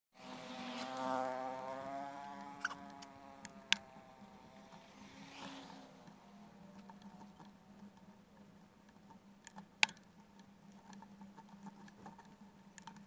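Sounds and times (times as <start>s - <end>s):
small motorcycle engine buzzing: 0.2s - 7.7s.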